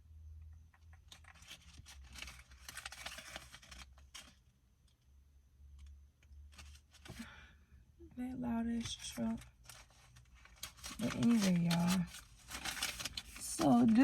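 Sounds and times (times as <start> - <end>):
banknotes rustling and crinkling: 0.7 - 4.6, 5.7 - 7.4, 8.5 - 14.0.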